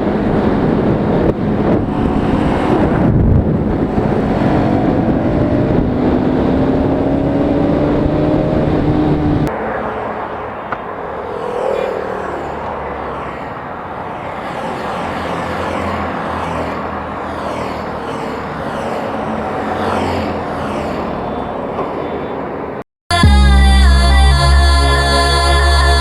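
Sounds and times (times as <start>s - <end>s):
motorcycle engine drone: 0.0s - 16.4s
wind and road noise: 0.0s - 22.8s
loud electronic music: 23.1s - 26.0s.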